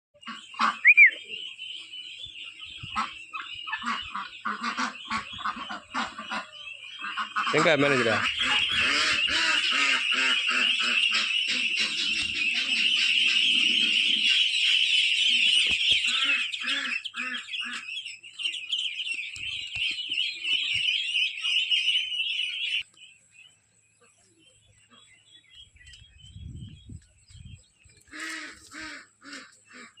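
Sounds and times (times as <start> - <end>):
large bird honking calls: 0.2 - 1.2, 2.8 - 18.0, 28.1 - 30.0
chickens clucking: 0.2 - 22.8
flock of small birds chirping: 0.2 - 30.0
loud high chirps: 0.5 - 1.4.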